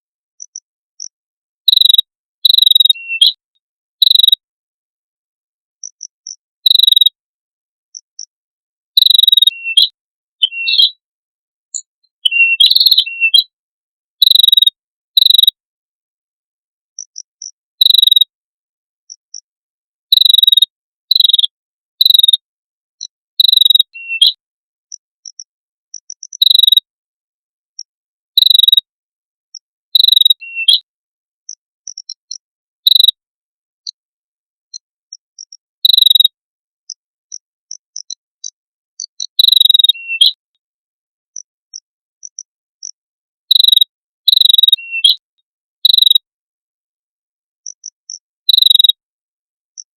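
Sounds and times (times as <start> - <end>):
harsh high bird chirps: 0.4 - 3.4, 4.0 - 4.4, 5.8 - 7.2, 8.9 - 11.0, 11.7 - 13.6, 14.2 - 15.6, 17.0 - 18.3, 20.0 - 22.4, 23.0 - 24.4, 25.2 - 26.9, 27.8 - 28.9, 30.0 - 30.9, 31.5 - 33.2, 34.7 - 40.4, 41.4 - 45.2, 45.8 - 46.3, 47.6 - 49.0.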